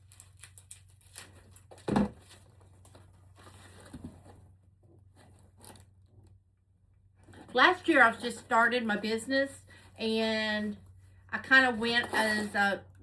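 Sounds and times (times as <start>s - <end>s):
plastic packaging crinkling: 0.0s - 3.9s.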